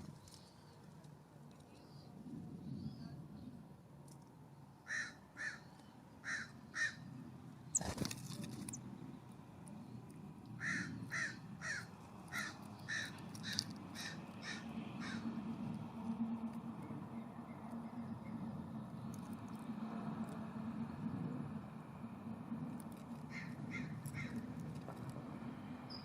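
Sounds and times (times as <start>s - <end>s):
jay harsh rasping calls: 4.9s - 7.0s, 10.6s - 15.2s.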